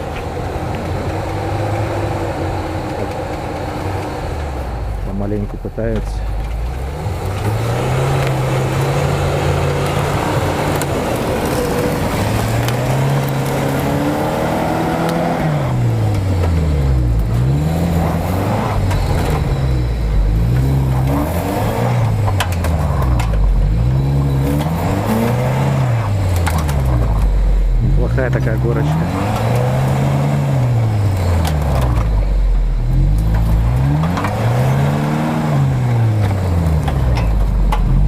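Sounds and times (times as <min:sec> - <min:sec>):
suv engine revving: 0:00.0 - 0:38.0.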